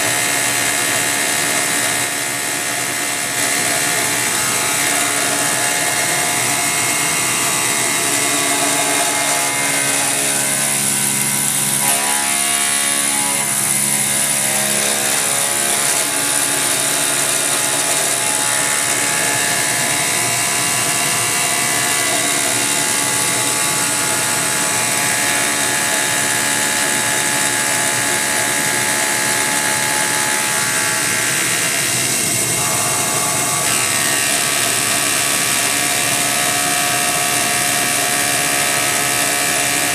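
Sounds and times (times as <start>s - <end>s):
milling machine whine: 0.0s - 39.9s.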